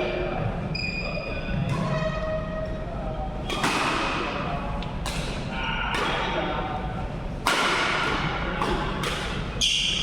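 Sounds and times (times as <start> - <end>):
racket hitting shuttlecock: 3.5 - 4.4, 5.0 - 6.3, 7.4 - 10.0.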